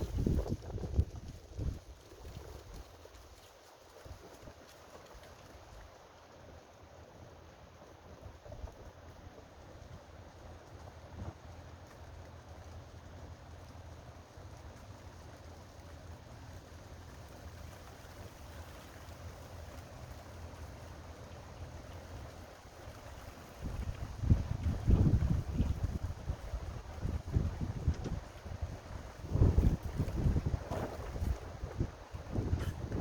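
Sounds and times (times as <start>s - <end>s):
wind buffeting microphone: 0.0s - 3.3s, 23.0s - 33.0s.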